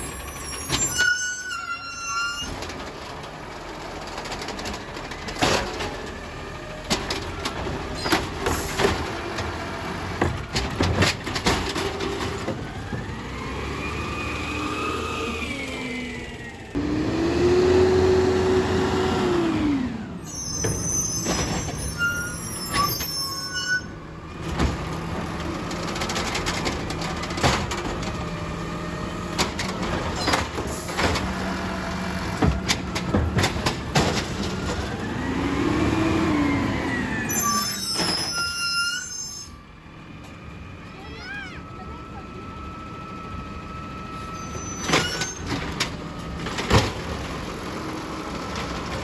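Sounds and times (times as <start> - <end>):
garbage truck engine revving: 2.5 - 23.3, 23.9 - 40.9, 41.6 - 49.0
knocks and clanks: 6.8 - 13.2, 24.4 - 28.3, 32.2 - 35.1, 44.8 - 47.2.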